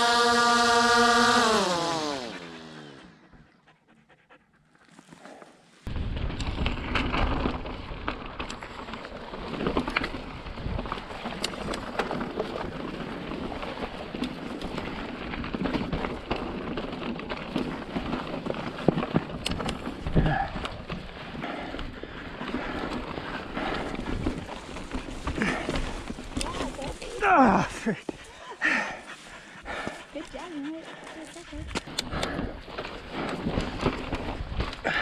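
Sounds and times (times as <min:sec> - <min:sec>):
bike clicks and rattles: 0:04.8 - 0:35.0
tyres rolling over rock: 0:06.0 - 0:29.0, 0:31.8 - 0:35.0.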